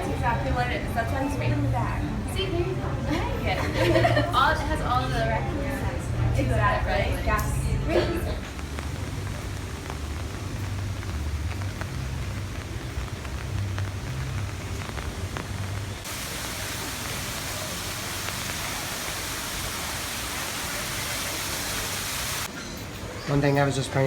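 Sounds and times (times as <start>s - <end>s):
rain falling: 0.0s - 22.5s
low rumble: 5.8s - 19.5s.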